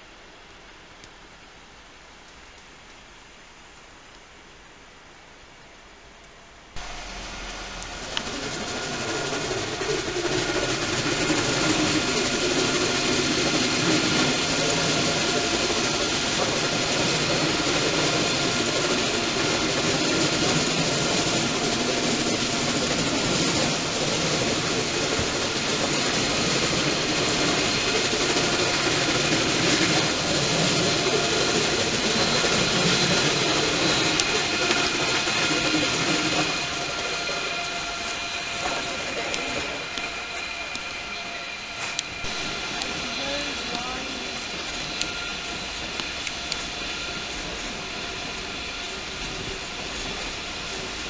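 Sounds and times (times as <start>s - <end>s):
train mechanical noise: 0.0s - 51.0s
high whining tones: 6.8s - 51.0s.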